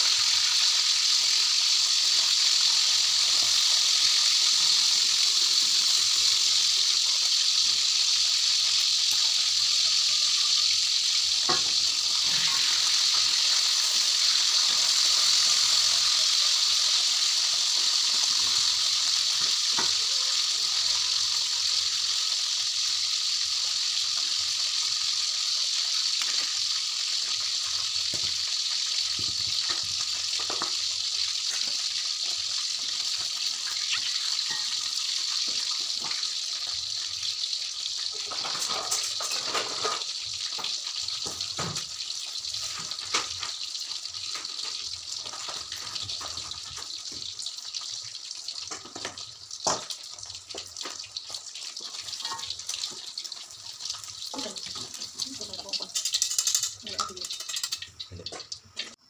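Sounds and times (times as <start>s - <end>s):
utensils and dishes clinking: 33.9s - 34.9s, 38.1s - 40.1s, 54.3s - 59.0s.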